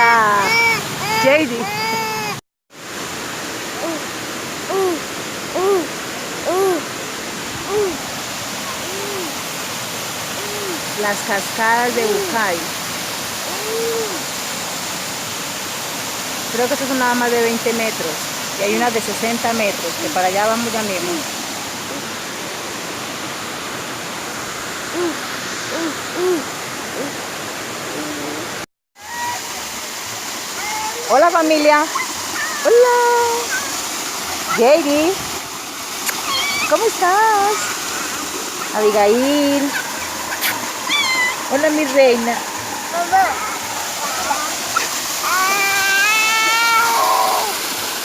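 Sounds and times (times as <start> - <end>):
waterfall rushing: 0.0 - 48.0
rising and falling call: 39.7 - 41.6.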